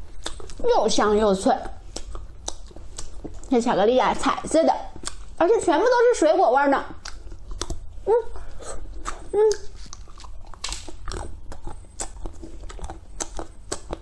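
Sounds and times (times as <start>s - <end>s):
crunchy chocolate chewing: 0.0s - 0.6s, 1.6s - 3.6s, 4.9s - 5.4s, 6.9s - 14.0s
person humming mm: 8.0s - 9.8s.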